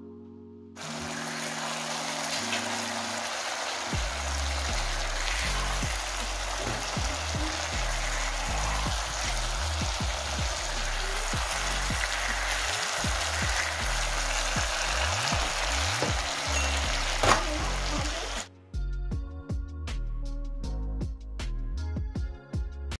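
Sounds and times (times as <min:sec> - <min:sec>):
food sizzling in a pan: 0:00.8 - 0:18.5
background music with bass: 0:03.9 - 0:22.9.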